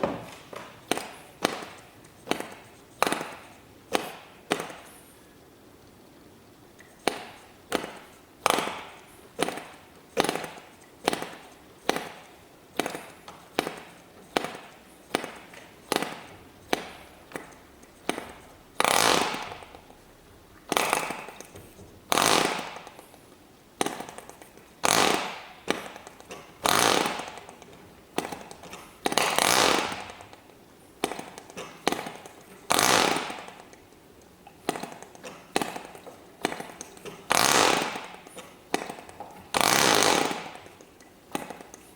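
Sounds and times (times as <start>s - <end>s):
model engine popping and firing: 20.7s - 21.5s.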